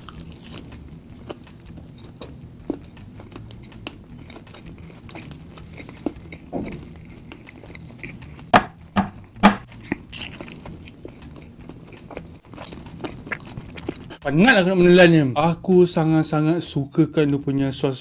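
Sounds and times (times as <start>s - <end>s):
close chewing: 0.0s - 8.5s, 9.2s - 14.2s.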